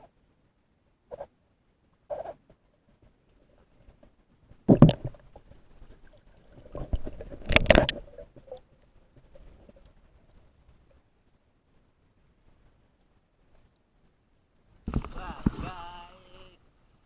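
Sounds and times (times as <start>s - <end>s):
water gurgling and sloshing: 3.3s - 11.1s, 14.8s - 16.2s.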